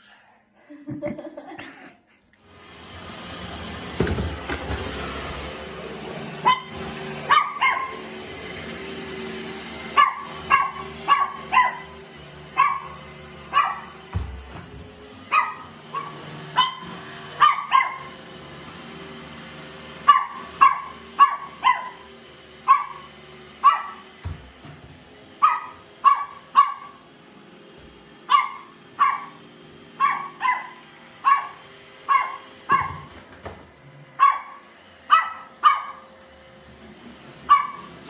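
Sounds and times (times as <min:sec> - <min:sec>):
small dog barking: 0:06.4 - 0:08.1, 0:09.9 - 0:14.0, 0:15.3 - 0:18.2, 0:20.0 - 0:24.0, 0:25.4 - 0:27.0, 0:28.3 - 0:29.4, 0:30.0 - 0:33.1, 0:34.2 - 0:36.1, 0:37.5 - 0:37.9.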